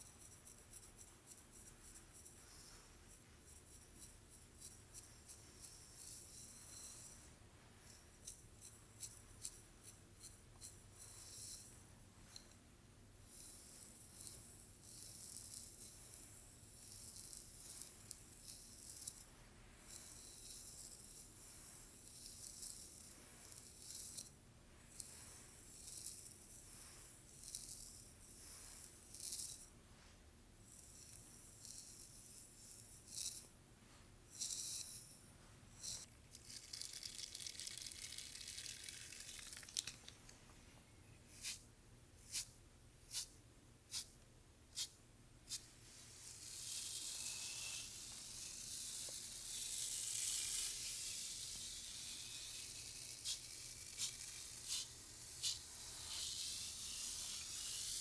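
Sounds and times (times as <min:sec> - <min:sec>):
brush rasping through hair: 0:00.0 - 0:07.3, 0:24.9 - 0:29.7, 0:35.8 - 0:40.2, 0:41.3 - 0:41.6, 0:42.3 - 0:43.3, 0:44.7 - 0:58.0
brush strokes through hair: 0:00.0 - 0:12.4, 0:24.9 - 0:36.1, 0:50.6 - 0:58.0.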